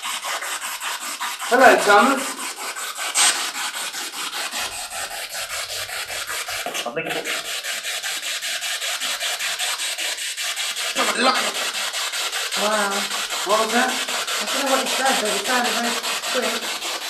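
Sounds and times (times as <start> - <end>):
voice fragment: 11.0 - 11.6, 12.6 - 16.6.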